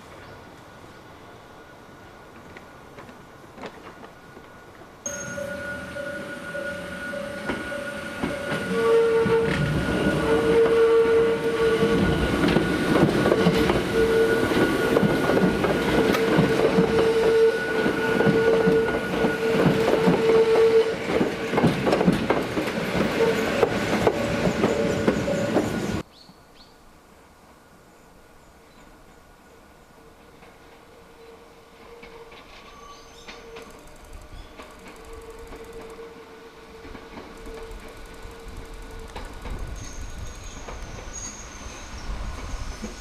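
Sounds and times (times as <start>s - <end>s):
high ringing tones: 5.0s - 15.0s
train wheels clattering: 5.1s - 26.0s, 31.8s - 36.1s, 36.7s - 43.0s.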